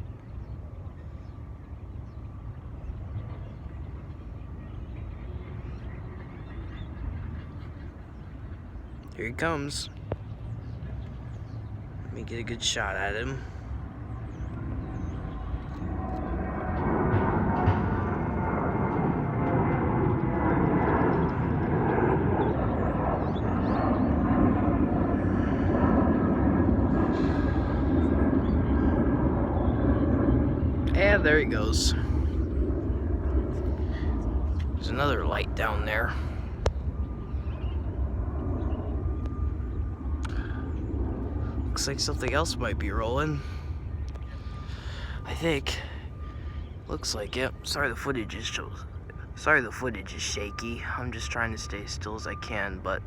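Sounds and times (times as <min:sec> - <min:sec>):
distant jet engine rumble: 0:00.0 - 0:53.0.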